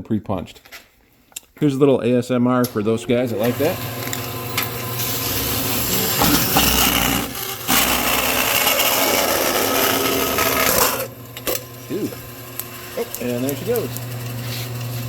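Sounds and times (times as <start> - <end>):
metal can being cut open: 5.8 - 15.0.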